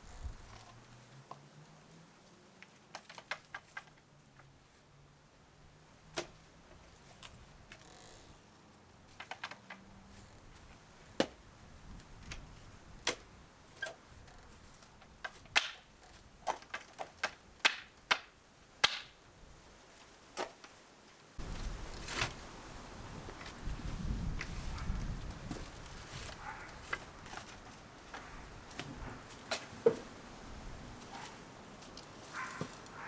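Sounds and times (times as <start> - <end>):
carpentry knocks and clicks: 15.0 - 19.1.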